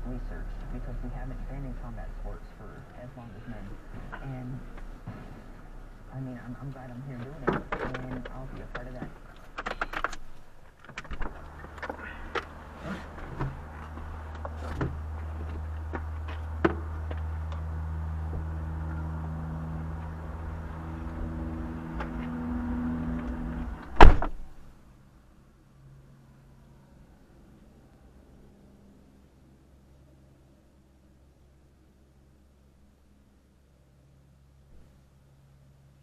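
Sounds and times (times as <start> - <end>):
loud thump: 24.0 - 24.4.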